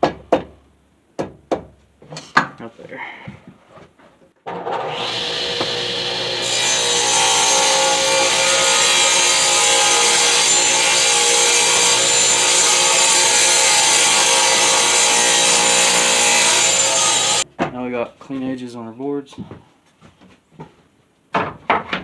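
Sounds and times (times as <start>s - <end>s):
power tool cutting board: 4.7s - 17.4s.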